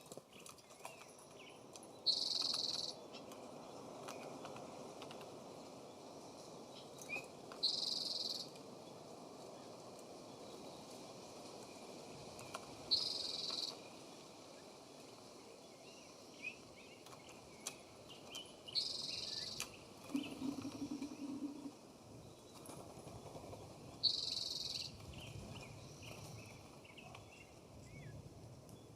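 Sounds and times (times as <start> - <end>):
soft bird chirps: 0.3 - 3.3, 15.8 - 21.8
buzzy high bird calls: 18.7 - 21.8.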